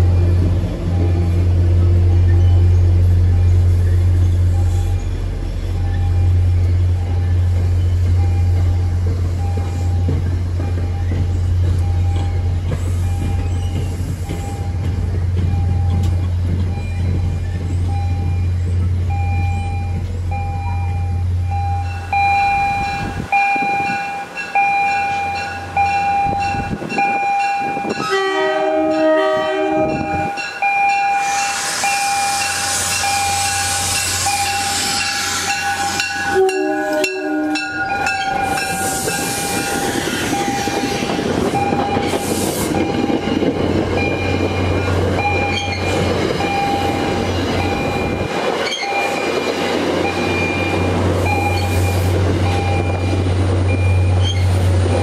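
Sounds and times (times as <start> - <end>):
train coaches rumbling past: 0.0 - 55.0
bell ringing steadily: 19.7 - 28.2, 29.8 - 40.8
train horn blasts: 27.8 - 30.4, 33.2 - 41.1.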